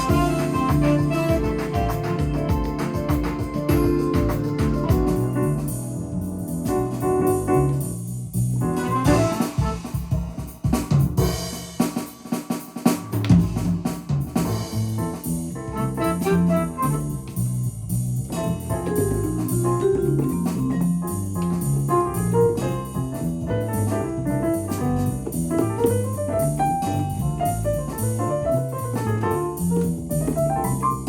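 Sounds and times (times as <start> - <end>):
piano and organ chords: 0.0 - 8.0, 8.6 - 10.0, 14.8 - 17.5, 18.3 - 31.0
walking bass line: 0.0 - 10.3, 13.3 - 31.0
jazz keyboard accompaniment: 0.0 - 11.5, 12.4 - 31.0
drum accompaniment: 0.0 - 31.0.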